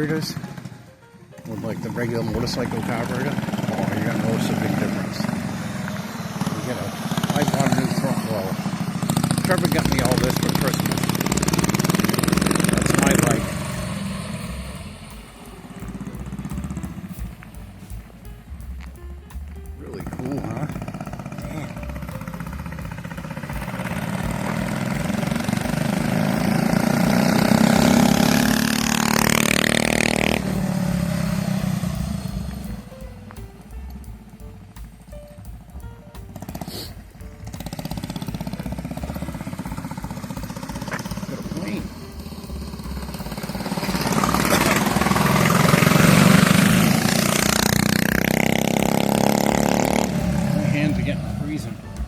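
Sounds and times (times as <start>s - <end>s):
propeller airplane flying over: 0.0s - 35.3s
small engine running: 0.0s - 52.0s.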